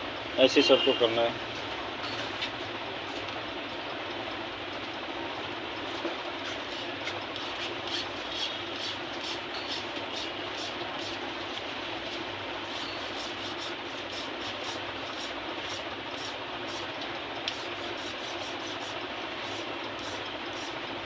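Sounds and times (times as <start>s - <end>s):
rubbing and scraping: 6.4s - 16.9s.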